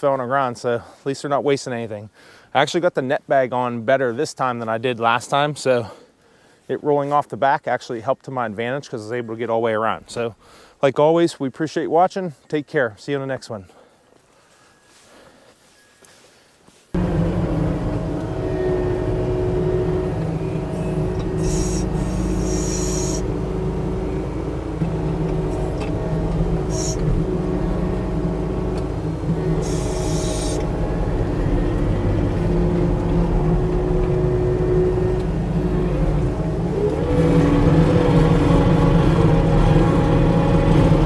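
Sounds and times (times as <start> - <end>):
diesel engine running under load: 17.0 - 41.0
short hisses: 21.4 - 23.3, 26.7 - 27.1, 29.6 - 30.7.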